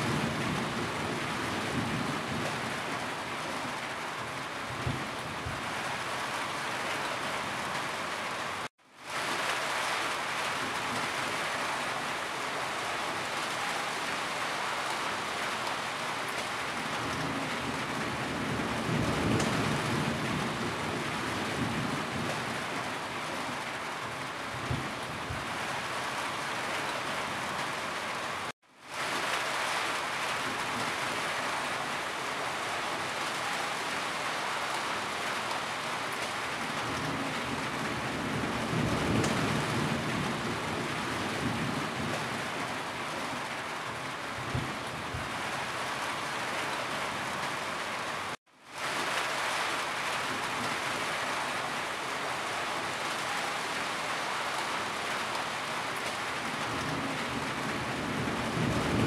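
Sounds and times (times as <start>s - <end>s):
heavy rain falling: 0.0s - 59.0s
thunder rumbling: 36.8s - 42.4s, 56.6s - 59.0s.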